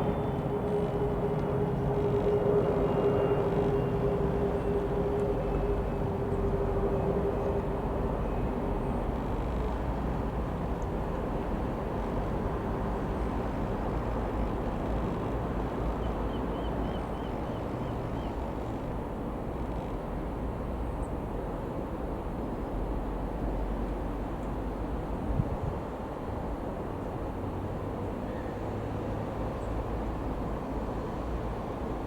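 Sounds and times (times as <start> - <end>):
jet engine whine: 0.0 - 8.8
jet rumble overhead: 0.0 - 17.8.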